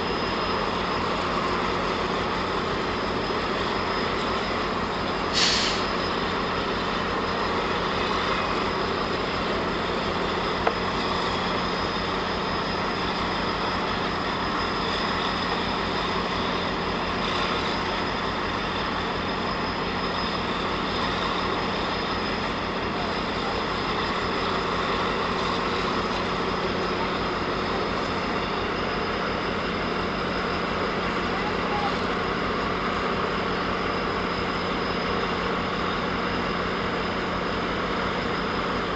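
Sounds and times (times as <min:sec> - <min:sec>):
diesel locomotive idling: 0:00.0 - 0:38.9
short hiss: 0:05.3 - 0:05.9.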